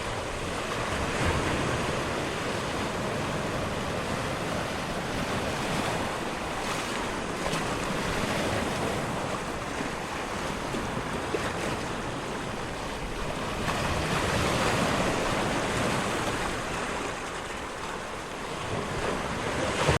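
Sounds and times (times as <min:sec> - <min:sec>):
ocean waves breaking: 0:00.0 - 0:20.0.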